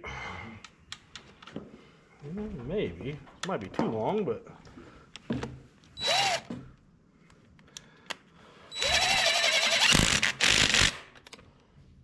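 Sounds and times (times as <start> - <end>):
power drill driving screw: 6.0 - 6.5, 8.7 - 11.0.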